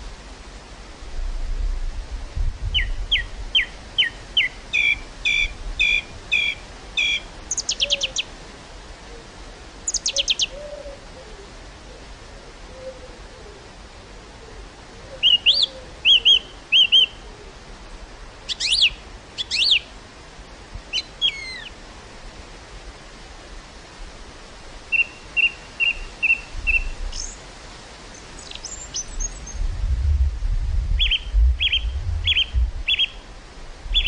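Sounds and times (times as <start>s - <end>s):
wind gusts rumbling on microphone: 0.0s - 7.4s, 26.0s - 34.0s
soft breeze hiss: 0.0s - 34.0s
small birds chirping: 2.8s - 8.3s, 9.9s - 10.6s, 15.2s - 17.2s, 18.5s - 19.9s, 20.9s - 21.8s, 24.9s - 27.4s, 28.1s - 29.6s, 31.0s - 33.3s.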